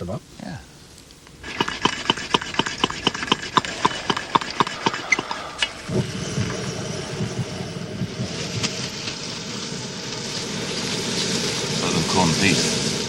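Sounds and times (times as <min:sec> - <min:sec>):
low rush with faint hiss: 0:00.0 - 0:02.0, 0:02.6 - 0:13.0
rapid clicks: 0:01.0 - 0:06.7.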